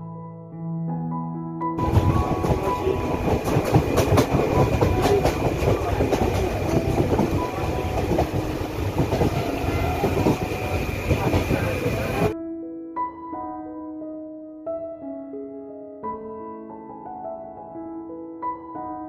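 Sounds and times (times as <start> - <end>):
piano music: 0.0 - 19.0
clickety-clack of rail joints: 1.8 - 12.3
train wheels rumbling on rail: 1.8 - 12.4.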